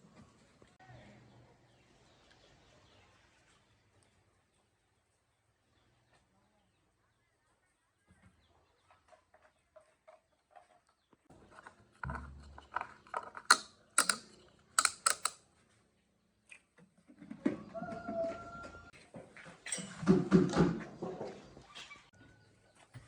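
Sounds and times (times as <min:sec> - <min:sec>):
mechanical clicks: 0:13.4 - 0:15.4.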